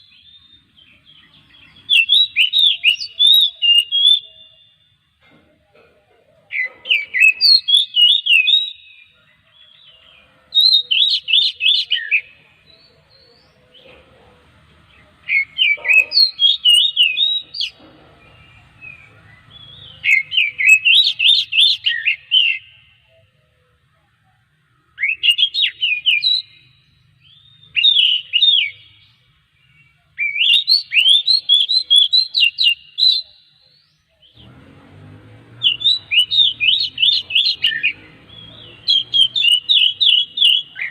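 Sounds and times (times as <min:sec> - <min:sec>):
bird singing whistled phrases: 0:01.7 - 0:04.8, 0:06.9 - 0:09.2, 0:10.6 - 0:12.4, 0:15.3 - 0:17.8, 0:18.8 - 0:22.8, 0:25.0 - 0:29.0, 0:30.2 - 0:34.4, 0:35.6 - 0:40.9.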